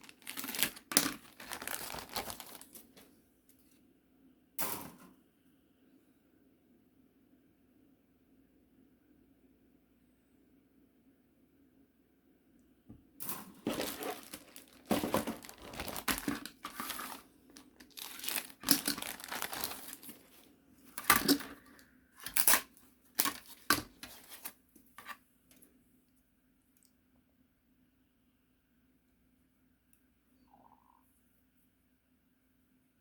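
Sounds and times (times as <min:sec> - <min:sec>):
packaging crinkling and rustling: 0:00.0 - 0:03.1, 0:13.4 - 0:25.2.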